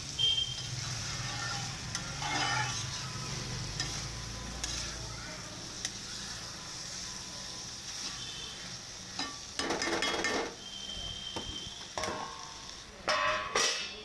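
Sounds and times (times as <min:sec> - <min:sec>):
steady hiss: 0:00.0 - 0:13.0
metal utensils scraping cookware: 0:01.0 - 0:03.0, 0:09.2 - 0:10.6.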